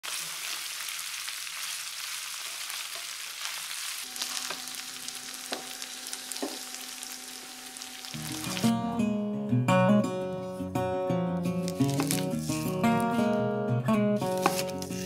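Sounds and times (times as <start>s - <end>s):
food sizzling and crackling in oil: 0.0s - 8.7s.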